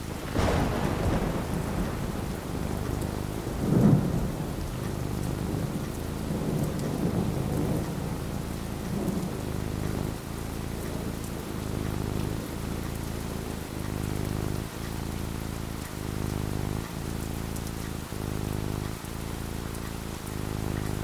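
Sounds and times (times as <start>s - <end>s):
thunder rumbling: 0.0s - 12.5s
rain falling: 0.0s - 21.0s.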